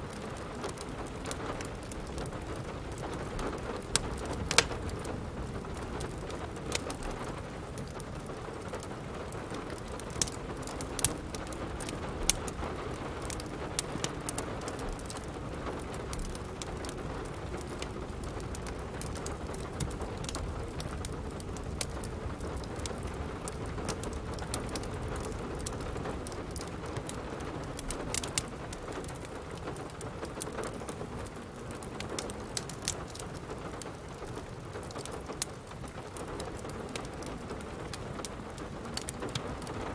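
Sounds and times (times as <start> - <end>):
steady rain falling: 0.0 - 39.9
wood fire popping and crackling: 0.0 - 39.9.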